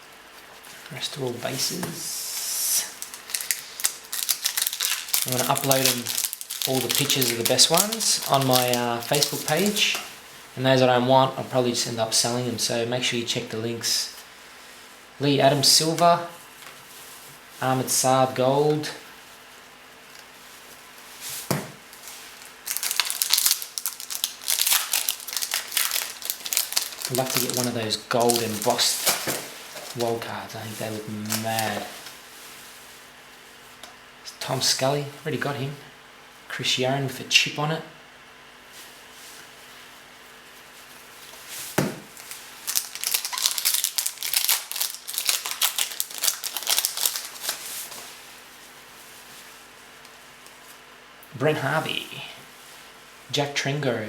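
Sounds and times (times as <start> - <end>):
wrapper crinkling: 1.4 - 10.1, 20.2 - 32.8, 40.6 - 48.2
card pack wrapper tearing: 2.9 - 9.9, 22.4 - 30.2, 31.2 - 31.9, 42.1 - 47.6.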